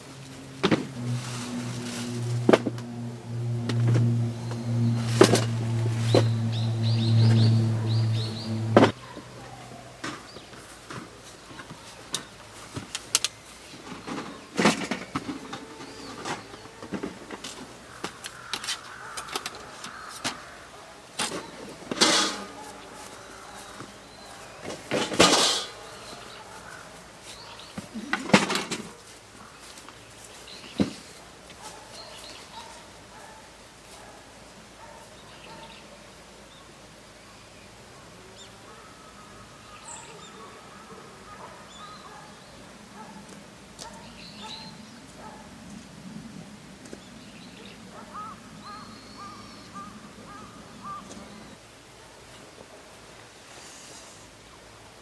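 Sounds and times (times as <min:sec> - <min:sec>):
steady low hum: 0:00.0 - 0:09.6
objects clattering: 0:10.0 - 0:20.4, 0:21.2 - 0:22.7, 0:24.6 - 0:25.9, 0:27.8 - 0:29.0
crow cawing: 0:17.8 - 0:20.8, 0:48.0 - 0:51.2.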